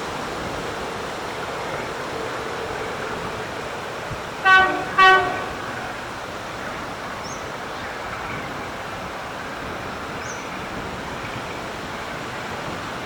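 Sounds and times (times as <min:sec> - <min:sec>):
locomotive horn toots: 0:04.4 - 0:06.2.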